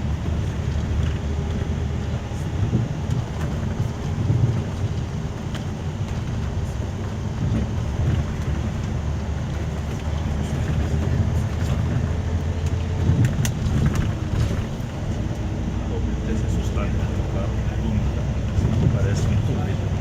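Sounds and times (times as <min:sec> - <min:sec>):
coach engine and road noise: 0:00.0 - 0:20.0.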